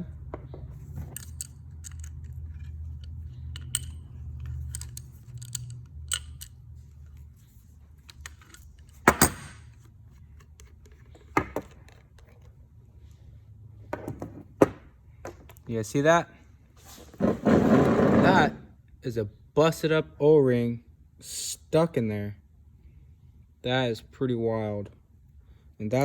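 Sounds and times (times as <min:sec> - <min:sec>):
small metal parts clinking: 0:00.8 - 0:09.9.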